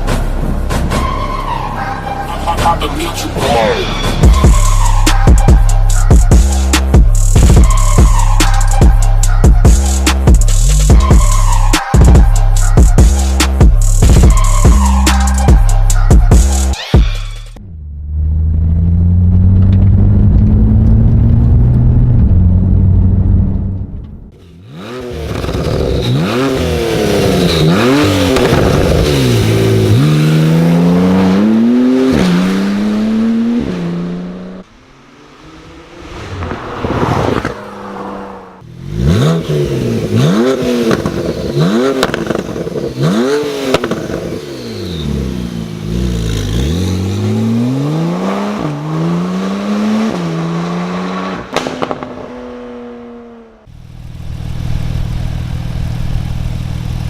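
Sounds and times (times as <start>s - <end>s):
car engine revving: 17.6s - 57.0s
exhaust cracks: 18.4s - 32.6s, 39.3s - 47.2s, 51.3s - 52.6s.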